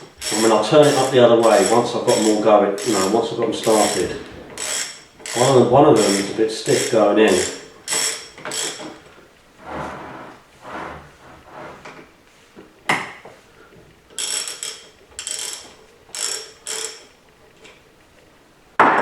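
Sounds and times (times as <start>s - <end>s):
metal bolts scraping: 0.2s - 9.0s.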